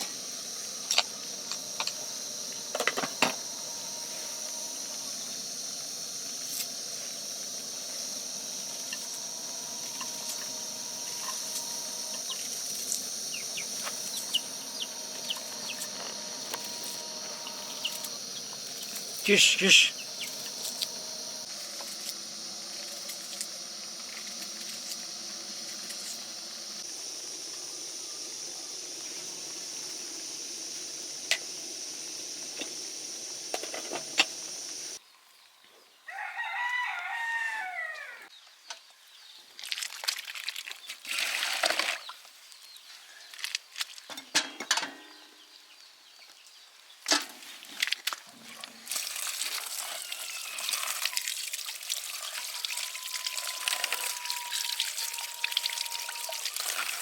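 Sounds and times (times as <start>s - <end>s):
high chirring: 8.6s - 21.5s
rooster crowing: 36.1s - 38.3s, 49.5s - 51.1s, 52.1s - 57.0s.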